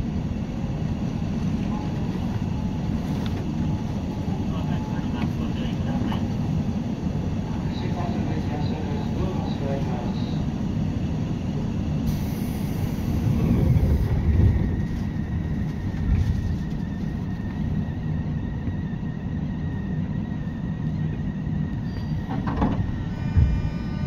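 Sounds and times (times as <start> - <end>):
train wheels rumbling: 0.0 - 24.0
whining tones: 12.1 - 24.0.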